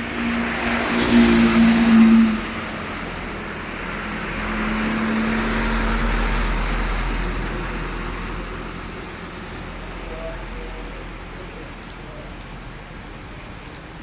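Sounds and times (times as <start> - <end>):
motor vehicle passing by: 0.0 - 9.9
steady rain: 0.0 - 14.0.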